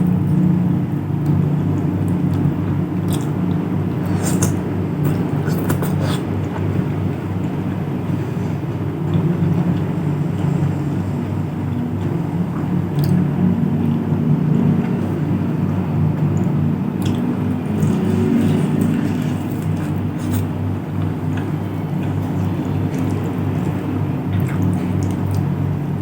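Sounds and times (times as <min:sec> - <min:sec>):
steady low hum: 0:00.0 - 0:26.0
chewing food: 0:01.2 - 0:06.7, 0:16.2 - 0:25.5.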